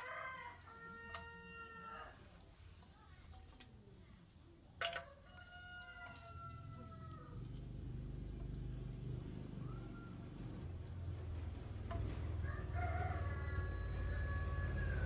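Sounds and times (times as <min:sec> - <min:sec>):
rooster crowing: 0:00.0 - 0:02.3, 0:05.0 - 0:07.5, 0:12.2 - 0:15.0.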